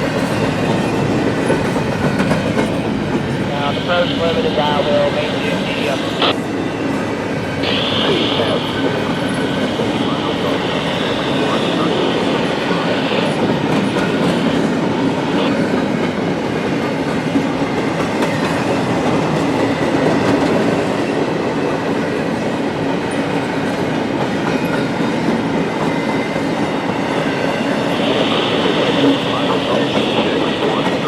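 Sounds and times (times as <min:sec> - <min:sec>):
freight train wheels on rails: 0:00.0 - 0:31.0.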